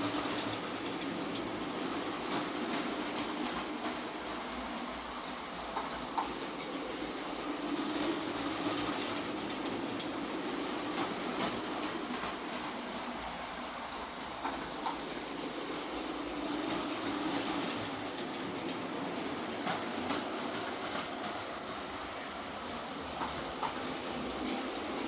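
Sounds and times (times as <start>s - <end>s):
toy train motor whir: 0.0s - 1.6s, 6.8s - 12.3s, 14.4s - 18.8s
wheels clicking over track joints: 0.0s - 25.0s.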